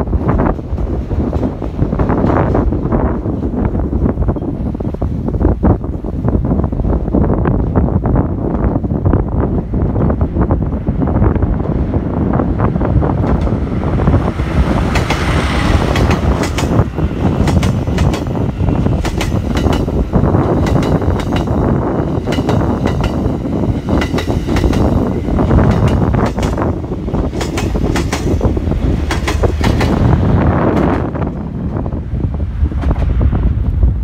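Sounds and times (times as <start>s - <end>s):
train rumbling past: 0.0s - 34.0s
wheels clicking over rail joints: 14.9s - 20.0s, 25.7s - 30.1s.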